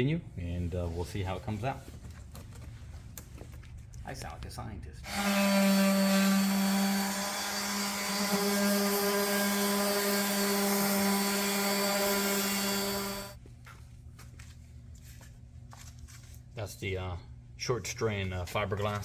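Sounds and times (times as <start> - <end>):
handheld power tool running: 5.1 - 13.4.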